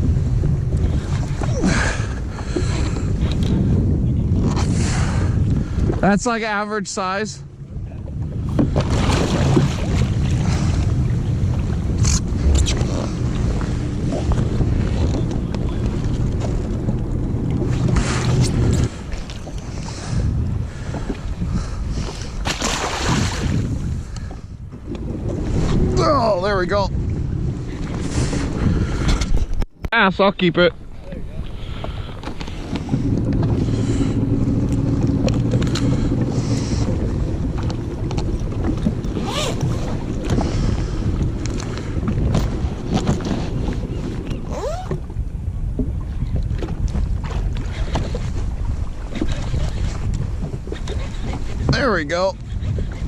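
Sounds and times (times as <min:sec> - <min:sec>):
jet ski engine running: 0:00.0 - 0:53.0
wind on microphone: 0:00.0 - 0:53.0
water splashing: 0:08.2 - 0:21.3, 0:21.9 - 0:23.9.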